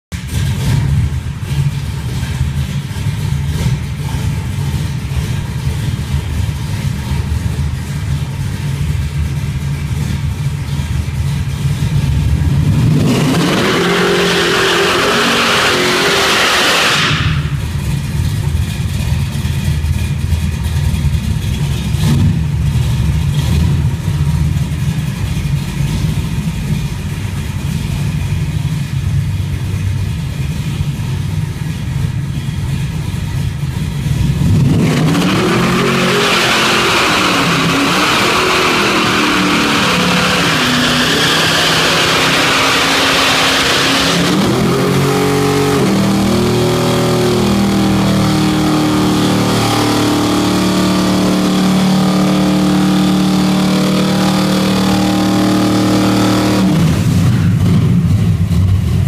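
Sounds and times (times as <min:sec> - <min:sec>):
car engine rumbling: 0:00.1 - 0:59.0
loud rushing noise: 0:12.8 - 0:18.0.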